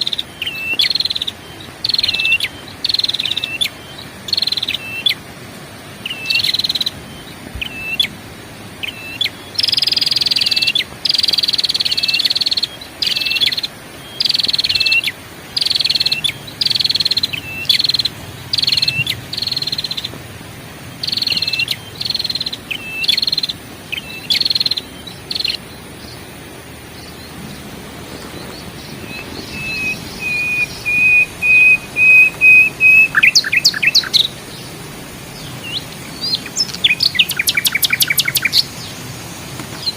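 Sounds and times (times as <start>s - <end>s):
bird trill: 0.0s - 5.2s, 6.0s - 8.1s, 8.8s - 20.2s, 21.0s - 26.2s, 26.9s - 38.9s
bird whistling falling notes: 28.2s - 34.3s.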